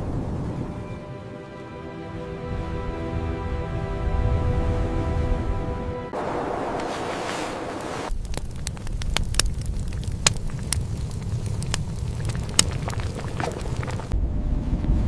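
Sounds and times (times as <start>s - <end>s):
music: 0.0s - 6.2s
fire crackling and popping: 6.8s - 14.2s.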